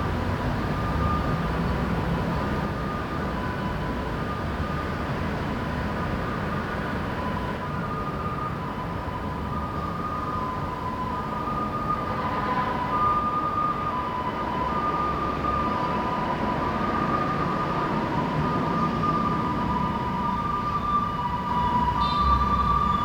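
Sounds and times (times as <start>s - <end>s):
low hum of city traffic: 0.0s - 23.0s.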